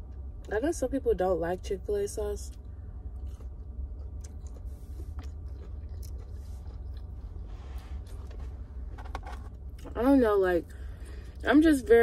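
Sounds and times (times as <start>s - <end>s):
steady low hum: 0.0s - 12.0s
chewing with crunches: 2.5s - 10.0s.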